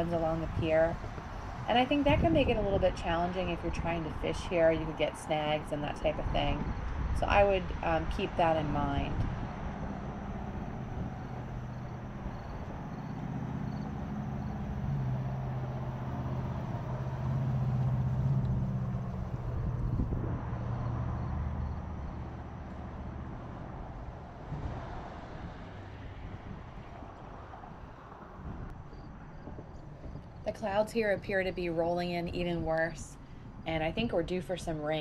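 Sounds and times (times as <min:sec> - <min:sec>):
low rumbling background: 0:00.0 - 0:24.8
vehicle engine humming: 0:00.0 - 0:32.6.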